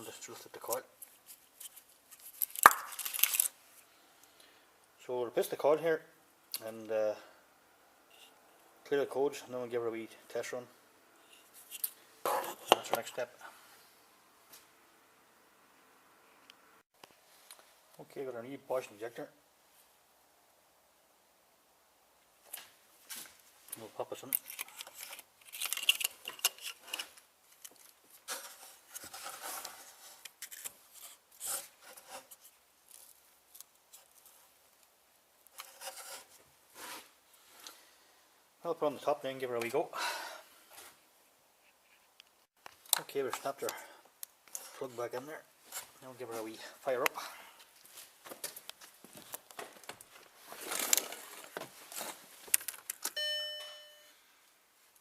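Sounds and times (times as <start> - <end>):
clicks and rubbing of plastic and metal: 23.7 - 36.4, 47.0 - 53.2
dashboard warning chime: 53.2 - 54.2.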